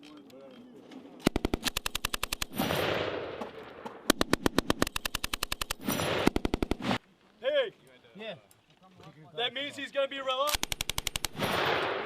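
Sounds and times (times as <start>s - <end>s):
machine gun firing bursts: 1.3s - 3.2s, 4.1s - 6.8s, 10.6s - 12.0s.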